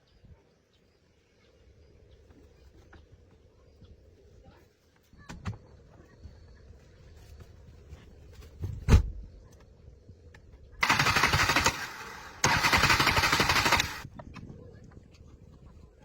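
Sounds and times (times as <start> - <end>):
thump: 8.6 - 9.2
rapid mechanical rattling: 10.8 - 14.1.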